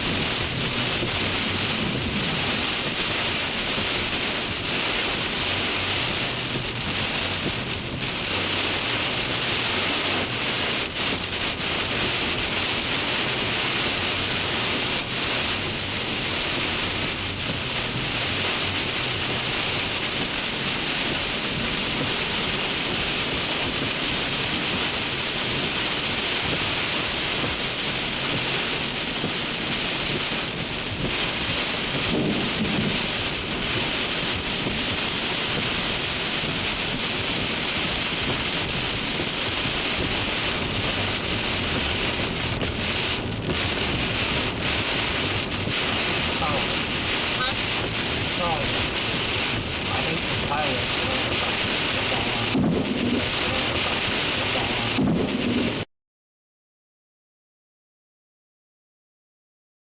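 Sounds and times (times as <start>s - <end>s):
low thunder rumble: 0.0s - 12.2s, 27.4s - 55.8s
heavy rain falling: 0.0s - 55.9s.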